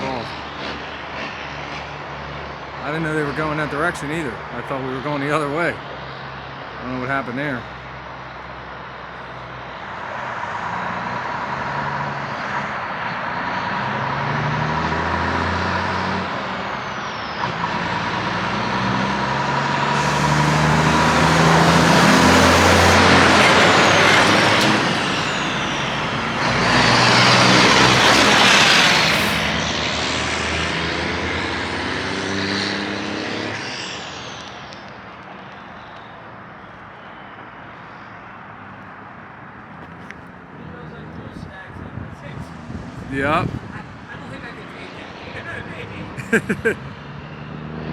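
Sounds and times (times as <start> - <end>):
truck diesel engine shifting gears: 17.2 - 29.6.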